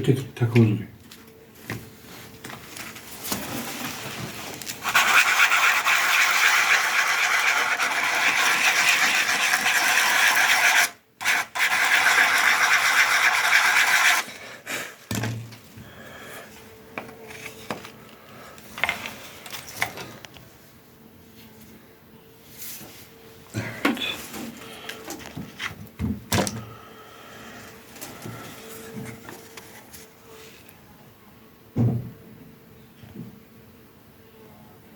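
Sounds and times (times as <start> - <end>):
scraping and handling sounds: 1.0 - 14.4, 15.1 - 20.5, 22.4 - 26.0, 27.4 - 30.7
sandpaper rasping on wood: 4.8 - 14.4.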